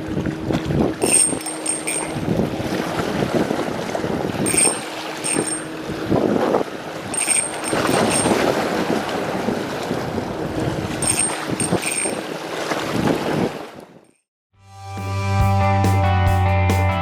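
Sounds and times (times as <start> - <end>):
wind buffeting microphone: 0.0 - 1.4, 2.0 - 5.0, 5.6 - 13.6
sea waves washing: 0.8 - 13.8.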